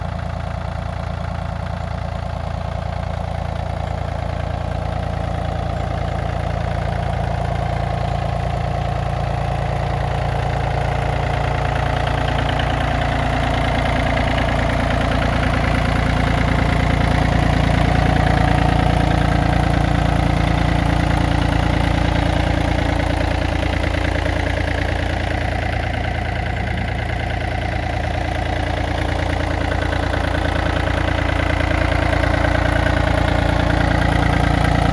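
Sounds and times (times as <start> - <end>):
diesel tractor engine running: 0.0 - 34.9.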